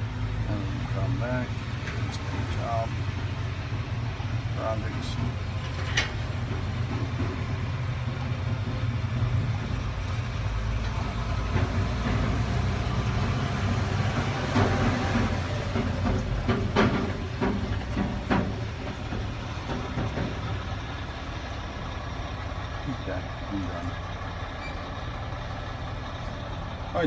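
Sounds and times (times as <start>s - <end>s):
excavator diesel engine idling: 0.0s - 27.0s
sharp knocks: 13.6s - 20.9s.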